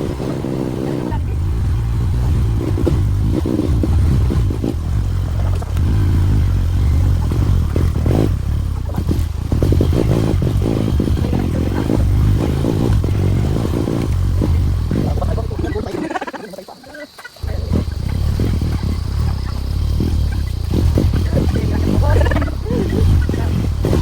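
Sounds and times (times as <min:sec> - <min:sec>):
knocks and rattles: 0:00.0 - 0:24.0
motorcycle engine running: 0:00.0 - 0:24.0.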